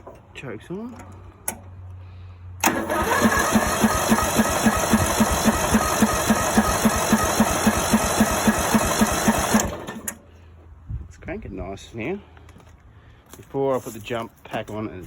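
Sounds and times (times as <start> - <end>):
mower engine cranking on starter: 2.6 - 10.3.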